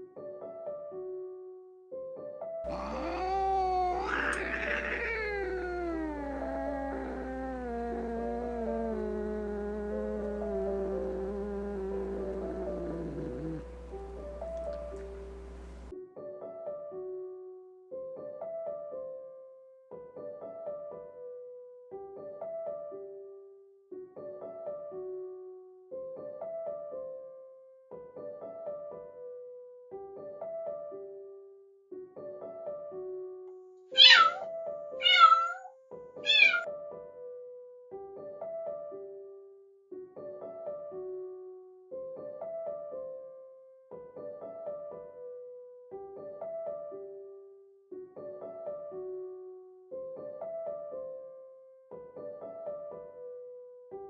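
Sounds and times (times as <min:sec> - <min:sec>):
gentle piano music: 0:00.0 - 0:33.5, 0:35.9 - 0:54.0
kitten meowing: 0:02.7 - 0:13.8, 0:34.0 - 0:34.4, 0:35.0 - 0:36.7.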